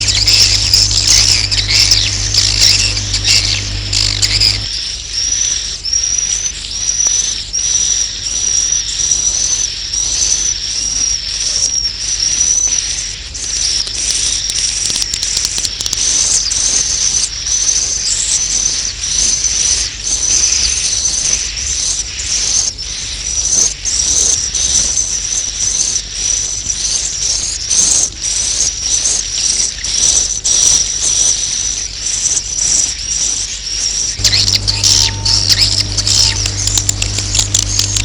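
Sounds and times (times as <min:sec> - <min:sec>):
low hum: 0:00.0 - 0:04.8, 0:34.2 - 0:38.0.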